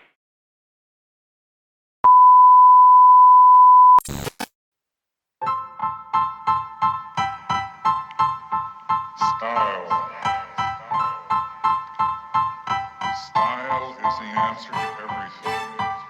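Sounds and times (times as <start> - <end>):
high electronic beep tone: 2.1 - 4.3
brief crackle: 4.0 - 4.5
piano music with repeated notes: 5.4 - 16.0.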